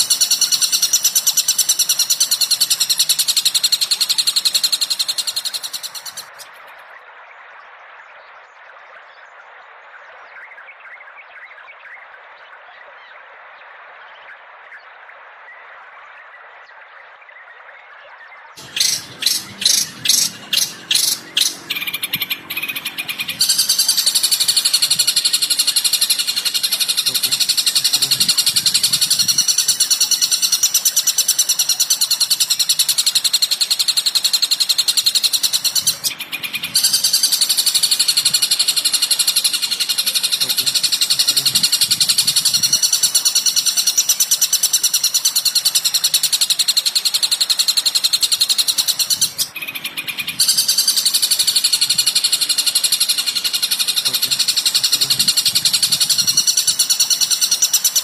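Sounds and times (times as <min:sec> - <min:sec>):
fast high bird chatter: 0:00.0 - 0:06.6, 0:18.6 - 0:58.0
sharp high bird calls: 0:00.0 - 0:06.6, 0:18.6 - 0:58.0.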